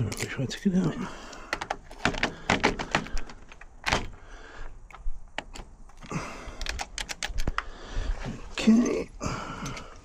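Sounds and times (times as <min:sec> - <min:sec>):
metal parts clicking and knocking: 0:00.0 - 0:00.6, 0:01.3 - 0:04.2, 0:04.9 - 0:07.6.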